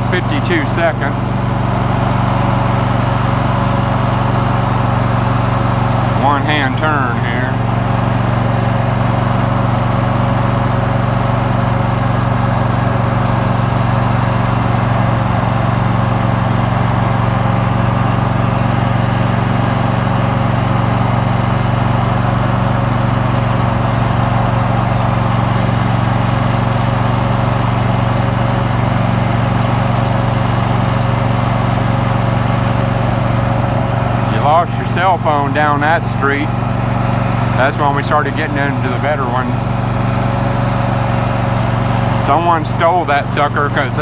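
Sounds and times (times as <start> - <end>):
riding lawn mower engine running: 0.0 - 44.0.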